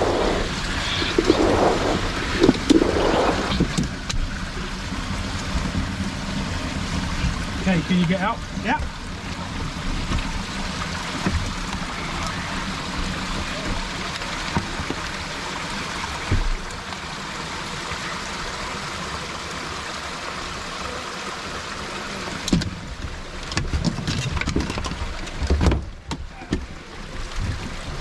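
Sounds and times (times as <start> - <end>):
irregular splashing: 0.0 - 3.7
water rushing into sinking car: 0.0 - 28.0.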